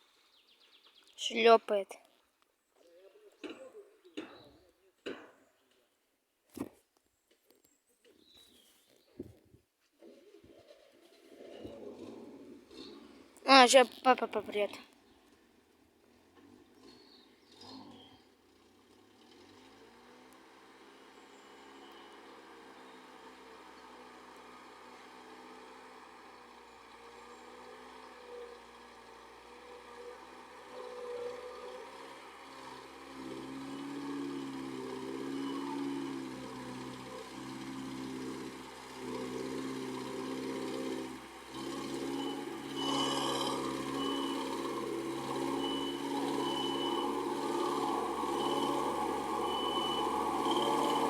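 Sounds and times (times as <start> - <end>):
distant van engine drone: 17.5 - 51.0
high-pitched squeaks: 41.6 - 51.0.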